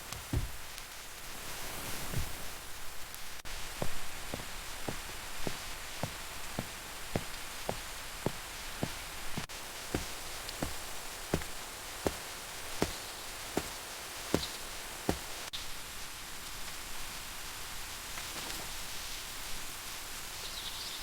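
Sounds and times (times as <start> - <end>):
steady hiss: 0.0 - 21.0
knife chopping on cutting board: 8.3 - 13.0, 13.6 - 13.8, 14.4 - 15.3.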